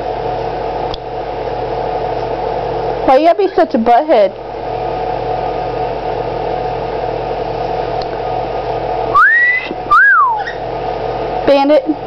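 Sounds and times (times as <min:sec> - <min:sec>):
steady mechanical hum: 0:00.0 - 0:12.0
pet bird whistling: 0:09.1 - 0:10.6.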